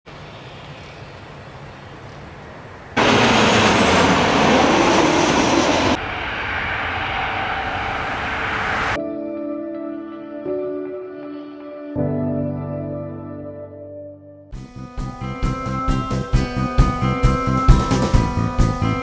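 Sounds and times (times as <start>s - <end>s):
jet engine rushing: 3.0s - 9.0s.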